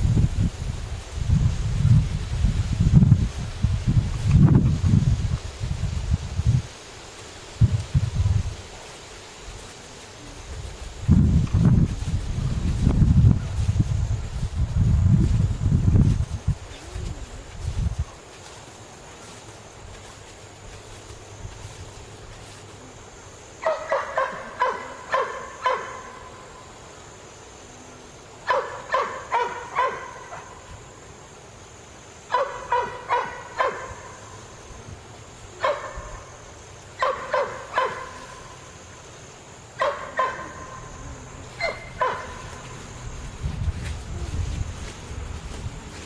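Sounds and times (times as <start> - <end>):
steady background hiss: 0.0 - 46.0
dog barking: 23.6 - 26.2, 28.5 - 30.6, 32.3 - 34.1, 35.6 - 36.2, 37.0 - 38.4, 39.8 - 40.8, 41.6 - 42.6.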